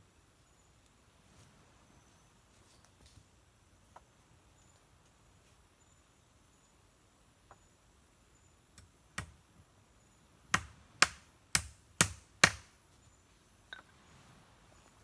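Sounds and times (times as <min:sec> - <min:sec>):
tool striking wood: 0:10.5 - 0:12.7.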